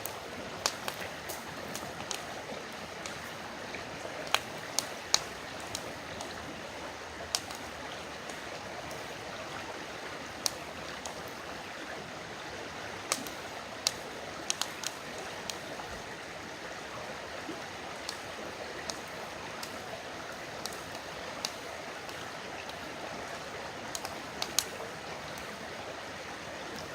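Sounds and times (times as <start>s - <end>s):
campfire popping and crackling: 0.0s - 11.7s, 13.0s - 16.4s, 17.6s - 26.9s
river flowing: 0.0s - 26.9s.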